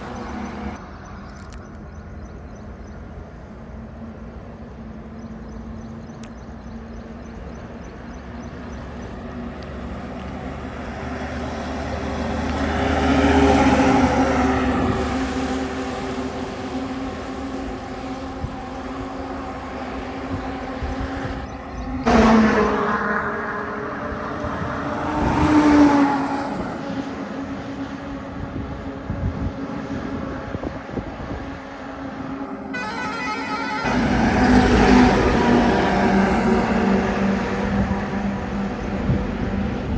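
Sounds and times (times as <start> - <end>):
diesel truck engine hum: 0.0 - 39.9
heavy truck driving past: 22.1 - 29.0, 31.9 - 39.9.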